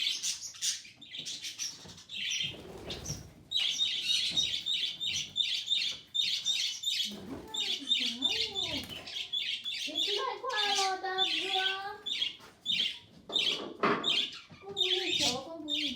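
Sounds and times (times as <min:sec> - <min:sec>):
baby budgerigar chirping: 0:00.0 - 0:15.9.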